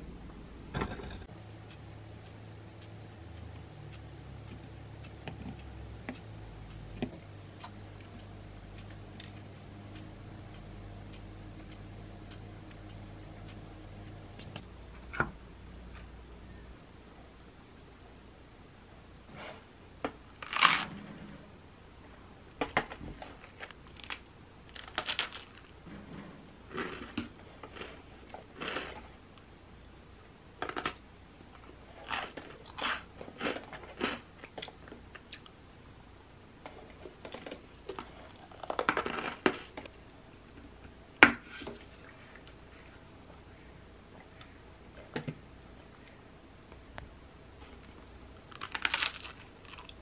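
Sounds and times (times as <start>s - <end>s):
chewing and crunching toast: 23.3s - 25.7s, 31.6s - 35.6s, 36.9s - 39.9s, 48.4s - 50.0s.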